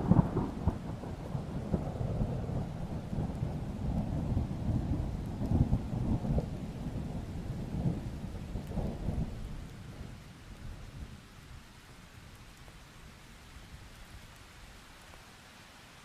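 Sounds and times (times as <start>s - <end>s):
distant thunder rumbling: 0.0s - 9.5s
rain hiss: 0.0s - 16.0s.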